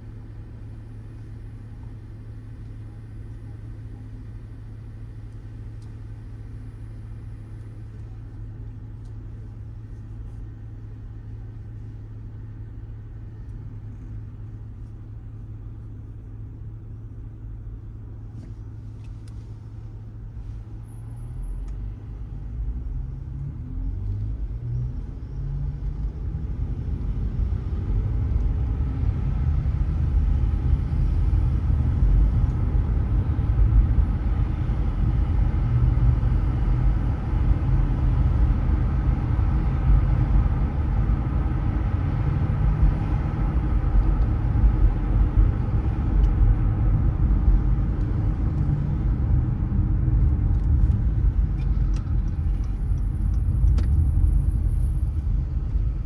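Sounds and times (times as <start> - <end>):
car tyres and engine rumble: 0.0 - 56.0.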